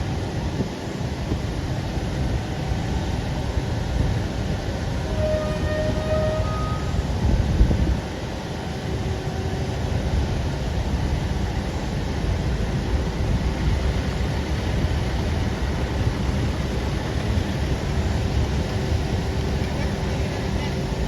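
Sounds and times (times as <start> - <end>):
truck engine rumbling: 11.1 - 21.0.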